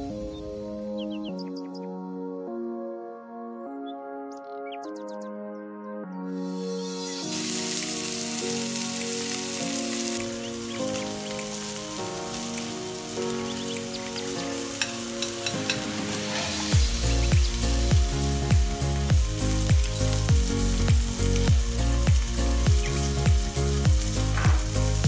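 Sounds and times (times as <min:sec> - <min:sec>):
background music: 0:00.0 - 0:25.0
steak sizzling in a pan: 0:07.3 - 0:25.0
heavy bass beat: 0:16.8 - 0:25.0.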